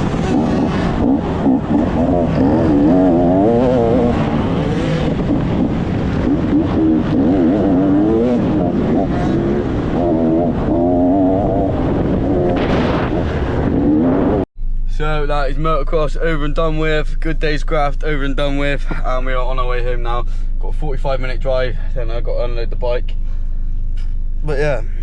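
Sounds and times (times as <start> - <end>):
motocross bike engine revving: 0.0 - 14.4.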